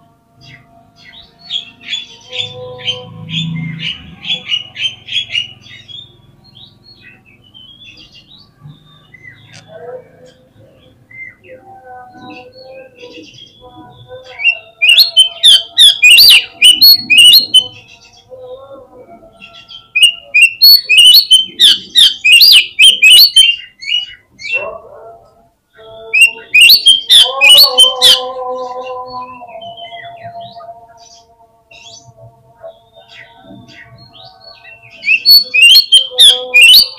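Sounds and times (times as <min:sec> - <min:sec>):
bird chirping and whistling: 0:12.2 - 0:18.1, 0:19.4 - 0:24.6, 0:26.1 - 0:28.3, 0:29.1 - 0:30.7, 0:33.0 - 0:36.9.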